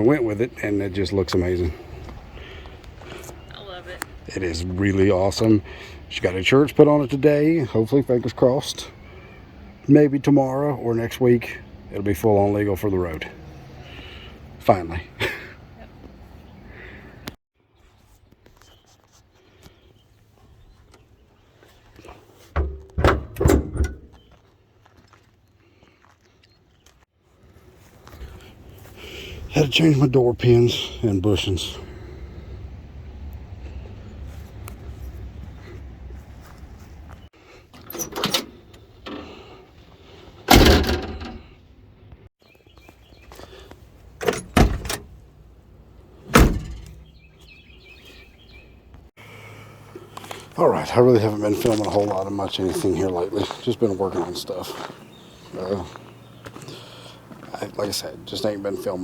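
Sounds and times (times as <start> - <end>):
car door opening and shutting: 22.5 - 24.2, 37.8 - 39.4, 40.4 - 41.5, 44.2 - 45.2, 46.2 - 47.2.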